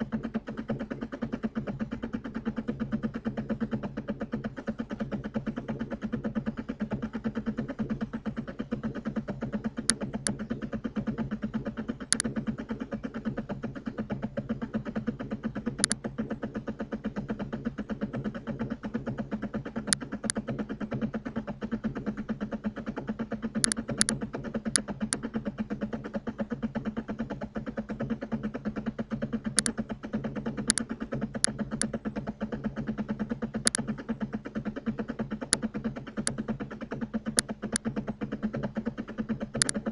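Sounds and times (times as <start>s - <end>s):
fast-pulsing low hum: 0.0s - 39.9s
computer mouse clicks: 9.8s - 10.6s, 12.0s - 12.4s, 15.8s - 16.0s, 23.6s - 25.3s, 29.5s - 29.8s, 30.6s - 32.0s, 33.6s - 33.9s, 35.5s - 36.5s, 37.3s - 37.9s, 39.5s - 39.9s.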